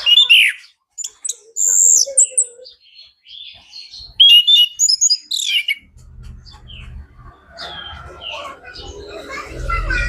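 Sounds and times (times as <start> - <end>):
thrush singing: 5.2 - 10.0.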